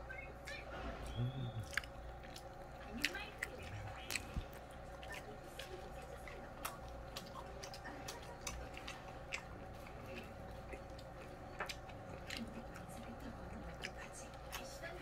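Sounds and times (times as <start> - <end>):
steady hum: 0.0 - 15.0
mouth clicks: 1.0 - 9.5
person chewing: 1.0 - 15.0.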